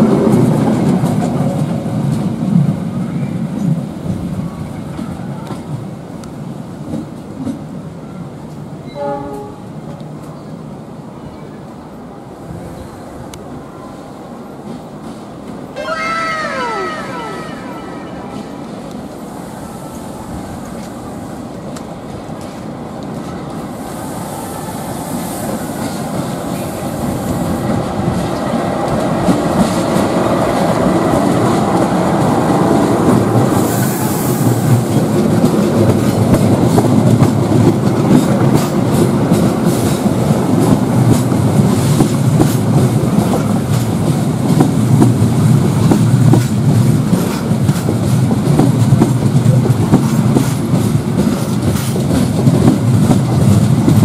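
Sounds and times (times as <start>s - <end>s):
diesel locomotive approaching: 0.0s - 54.0s
train wheels clacking over rail joints: 28.0s - 54.0s.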